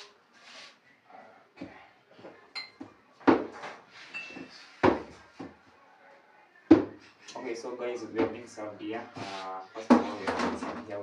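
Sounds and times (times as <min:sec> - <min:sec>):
tableware clinking: 0:02.5 - 0:04.6.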